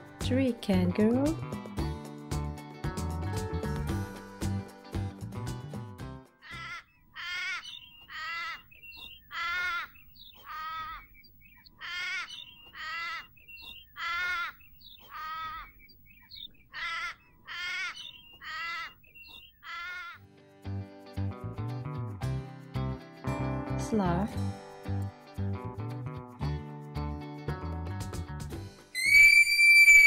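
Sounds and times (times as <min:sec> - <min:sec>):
harsh wavering animal calls: 0:06.4 - 0:15.8, 0:16.6 - 0:20.2.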